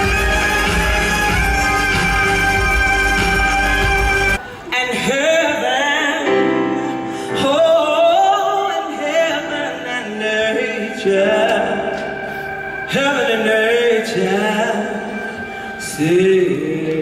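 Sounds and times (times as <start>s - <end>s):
instrumental accompaniment: 0.0s - 4.4s
singers with vibrato: 0.0s - 17.0s.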